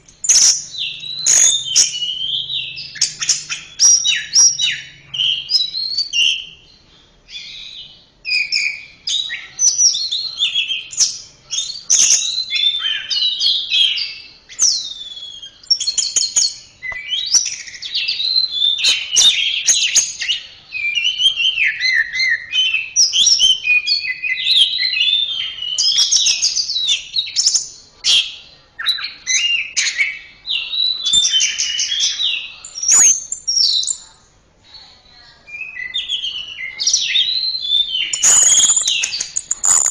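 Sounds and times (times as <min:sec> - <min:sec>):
sharp clicks: 0:38.2 - 0:39.9.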